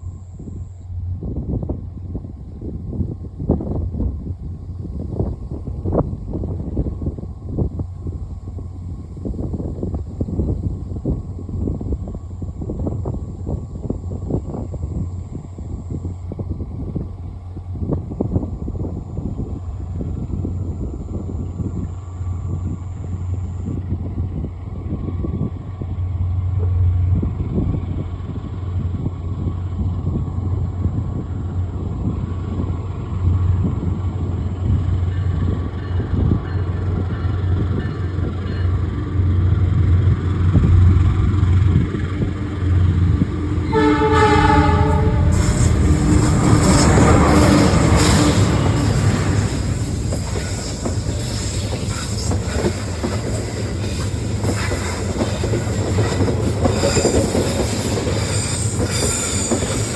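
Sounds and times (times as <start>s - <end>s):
diesel locomotive rumbling: 0.0s - 59.9s
wheel and rail noise: 5.1s - 59.9s
train horn: 42.2s - 51.0s.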